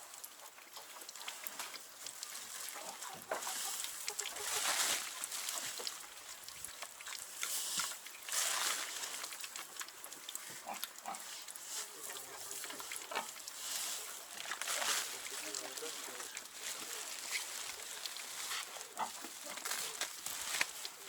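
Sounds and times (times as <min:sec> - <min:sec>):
rustling: 0:01.6 - 0:06.1, 0:07.4 - 0:09.8, 0:10.6 - 0:21.0
pigs grunting: 0:10.4 - 0:13.4, 0:15.2 - 0:20.1.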